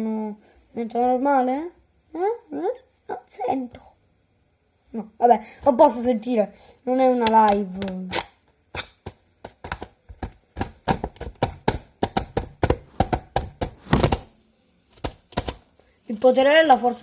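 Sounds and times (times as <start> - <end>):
sharp taps on hard objects: 8.8 - 14.3, 15.0 - 15.6.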